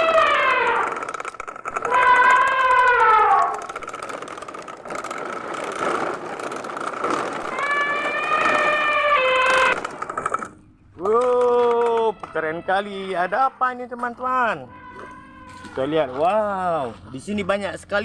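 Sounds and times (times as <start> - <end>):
electronic siren-like wail: 0.0 - 1.1, 1.8 - 3.7, 7.5 - 9.9, 14.6 - 16.2.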